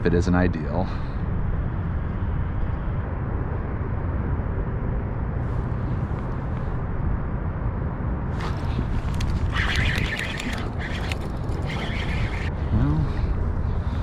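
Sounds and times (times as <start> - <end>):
wind buffeting microphone: 0.0 - 14.0
sharp clicks: 8.4 - 12.5.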